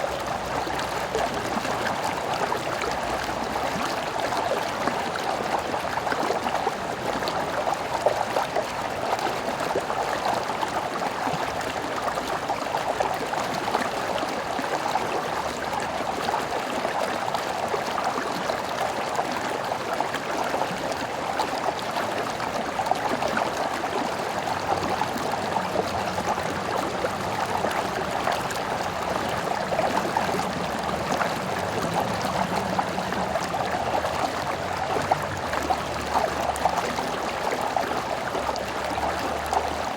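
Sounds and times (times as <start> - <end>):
stream over stones: 0.0 - 39.9.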